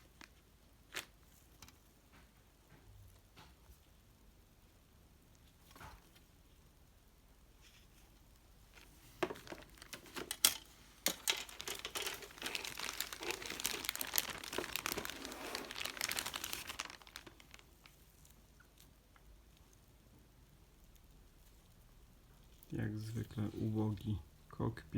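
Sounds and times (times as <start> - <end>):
plastic packaging crinkling: 8.8 - 18.3.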